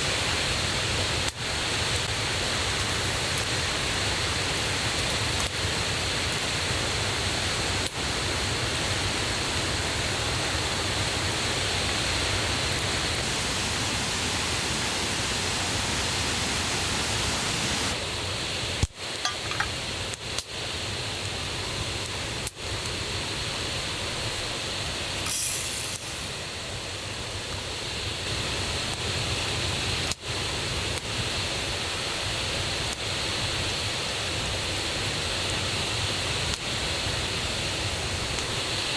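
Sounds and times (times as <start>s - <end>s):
river and waterfall rushing: 9.6s - 18.0s.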